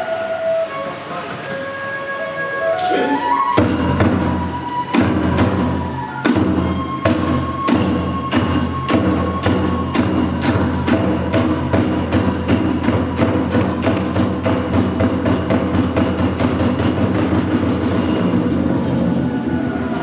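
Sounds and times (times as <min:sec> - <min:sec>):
drum strikes: 0:03.6 - 0:19.1.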